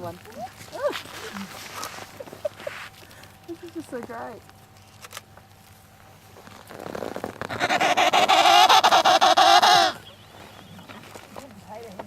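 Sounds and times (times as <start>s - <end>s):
animal honking call: 7.5s - 11.3s.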